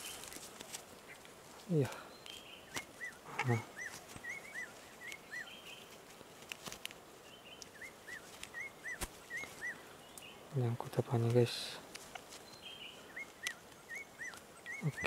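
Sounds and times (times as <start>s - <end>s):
bird chirping: 1.0s - 6.1s, 7.2s - 15.0s.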